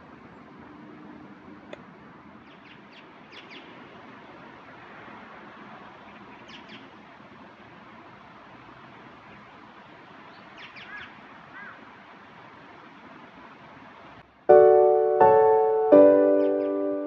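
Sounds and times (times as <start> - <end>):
steady background hiss: 0.0 - 17.0
small birds chirping: 2.4 - 4.5, 5.8 - 7.2, 9.2 - 11.9.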